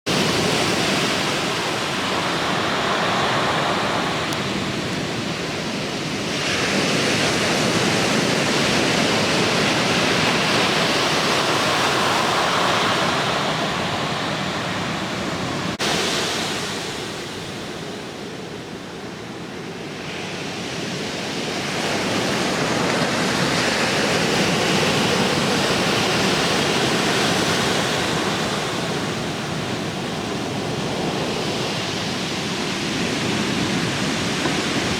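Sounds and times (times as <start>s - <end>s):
ocean waves breaking: 0.1s - 34.9s.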